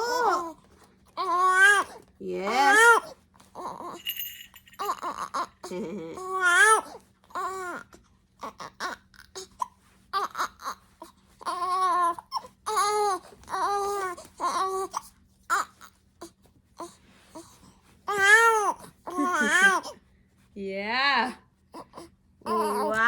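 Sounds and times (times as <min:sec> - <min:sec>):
baby crying wails: 0:18.1 - 0:20.0, 0:22.5 - 0:23.0.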